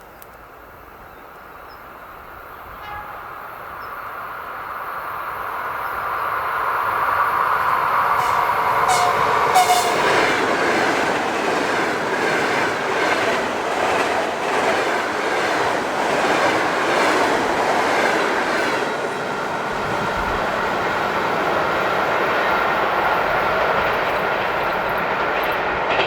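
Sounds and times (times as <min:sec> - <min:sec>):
train wheels clattering over rails: 0:07.6 - 0:26.0.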